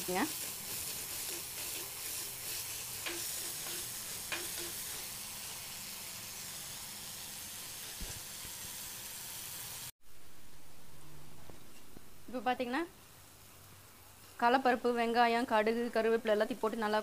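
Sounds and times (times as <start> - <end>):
food sizzling in hot oil: 0.0 - 10.0, 14.2 - 17.0
spoon scraping and tapping pot: 3.0 - 5.0.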